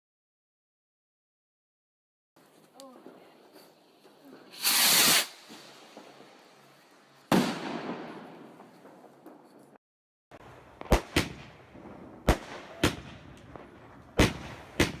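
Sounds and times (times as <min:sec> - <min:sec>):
firework rushing hiss: 0:03.6 - 0:08.3
firework bang: 0:07.3 - 0:09.0, 0:10.8 - 0:15.0.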